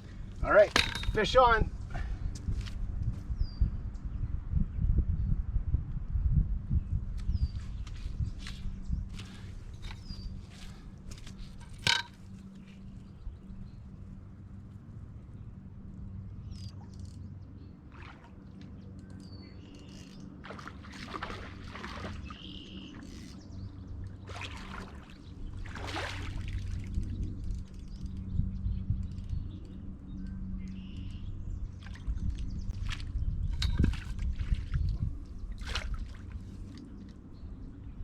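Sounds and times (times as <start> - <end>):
water splashing: 17.9 - 18.4, 20.4 - 23.0, 24.2 - 27.0, 35.5 - 36.8
small birds chirping: 22.0 - 25.9, 27.7 - 35.8.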